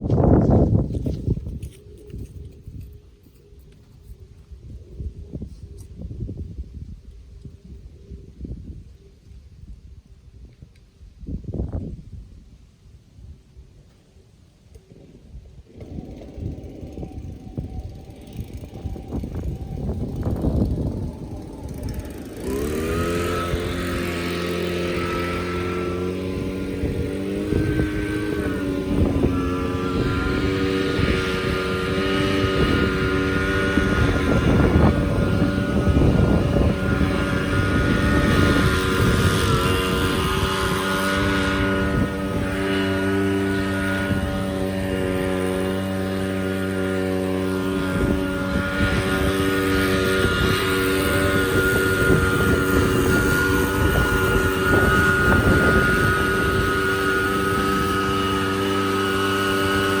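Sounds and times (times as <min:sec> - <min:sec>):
small engine running: 0:00.0 - 0:09.1, 0:13.9 - 1:00.0
wind buffeting microphone: 0:00.0 - 1:00.0.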